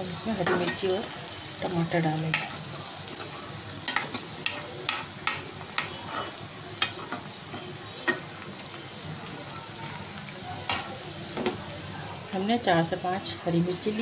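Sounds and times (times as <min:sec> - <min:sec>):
onions sizzling in hot oil: 0:00.0 - 0:14.0
spatula scraping a pan: 0:03.8 - 0:08.3.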